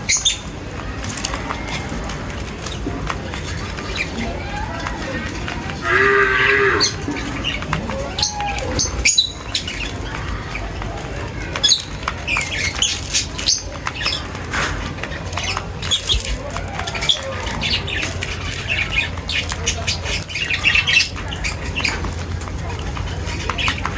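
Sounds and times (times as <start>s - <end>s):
birds chirping and squawking: 0.0s - 23.9s
loud drawn-out animal call: 5.8s - 7.0s.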